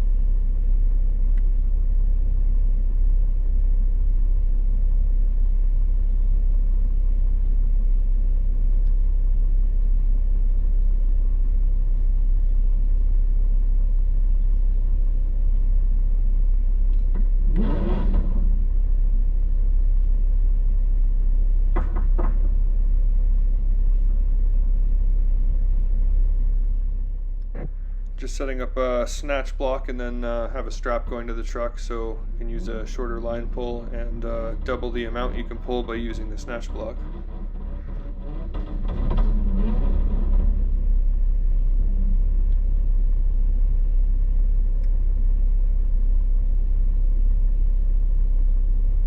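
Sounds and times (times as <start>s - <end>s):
vehicle engine idling: 18.4s - 49.0s
high-pitched squeal: 28.7s - 40.8s.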